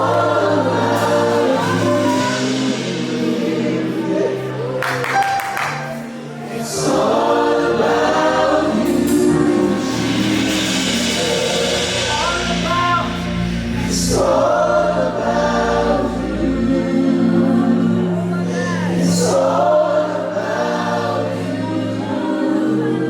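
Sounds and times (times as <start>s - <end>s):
group singing gospel: 0.0s - 23.0s
sustained keyboard accompaniment: 0.0s - 23.0s
deep bass note: 7.7s - 18.9s.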